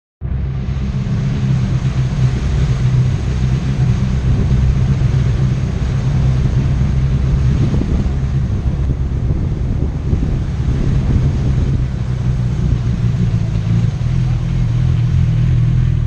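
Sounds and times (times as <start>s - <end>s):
motorcycle engine running: 0.2s - 16.0s
wind and road noise: 0.2s - 16.0s.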